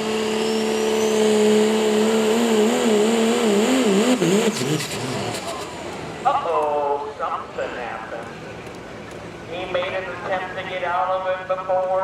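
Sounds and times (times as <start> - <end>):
engine running at high revs: 0.0 - 6.3.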